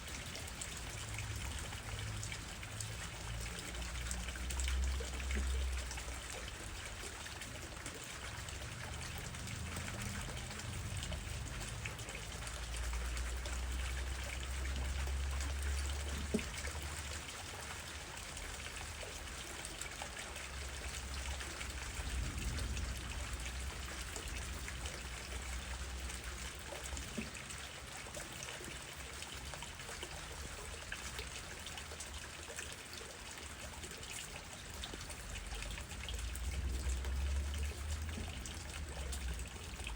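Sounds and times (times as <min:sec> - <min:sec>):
steady rain falling: 0:00.0 - 0:28.6, 0:34.1 - 0:39.9.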